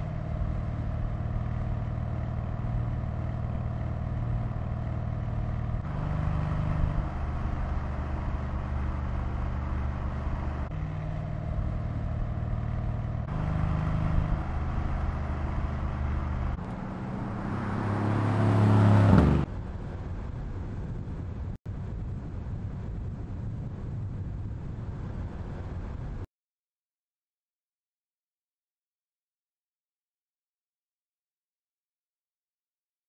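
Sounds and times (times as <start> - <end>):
car engine accelerating: 0.0 - 19.5.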